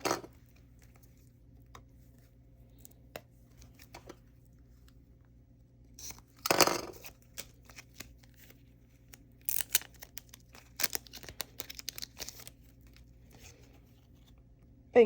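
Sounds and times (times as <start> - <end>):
packaging tearing: 6.0 - 13.4
packaging crinkling: 6.0 - 13.6.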